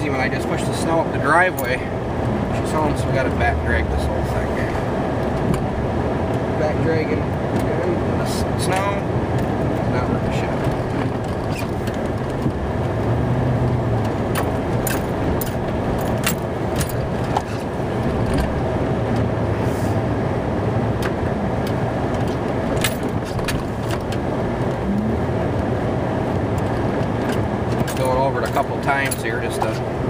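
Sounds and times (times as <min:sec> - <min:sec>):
truck engine running: 0:00.0 - 0:30.0.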